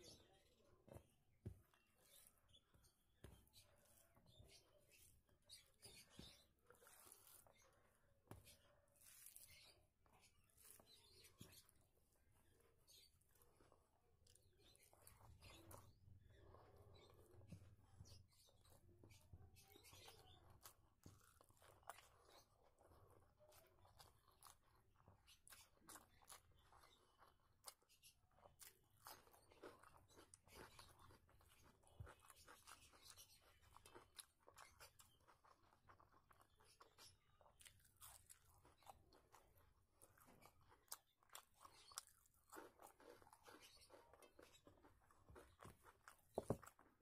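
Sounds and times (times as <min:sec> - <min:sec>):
chewing and lip smacks: 0:12.6 - 0:47.0.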